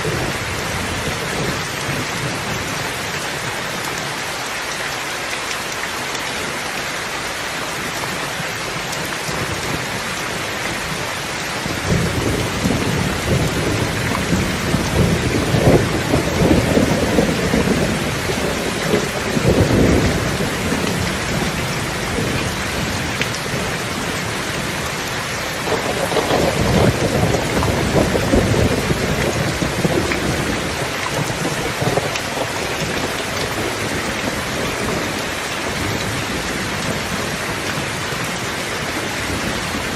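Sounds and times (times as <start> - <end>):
heavy rain: 0.0 - 39.9
thunder rumbling: 11.6 - 39.9.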